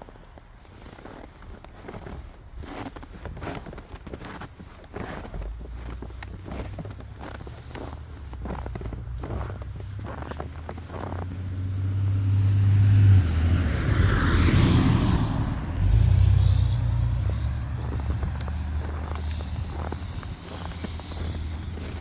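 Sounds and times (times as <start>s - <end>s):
car driving past: 6.5s - 22.0s.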